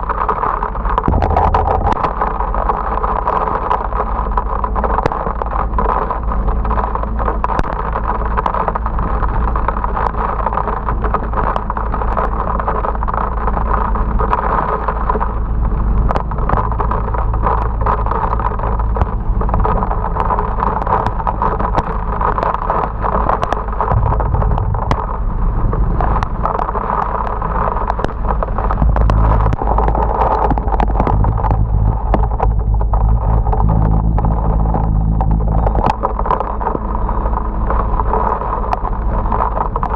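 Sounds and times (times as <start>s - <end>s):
motorbike engine and wind rumble: 0.0s - 39.9s
sharp ticks of rain: 0.0s - 39.9s
rain hissing: 0.1s - 4.9s, 15.5s - 38.0s.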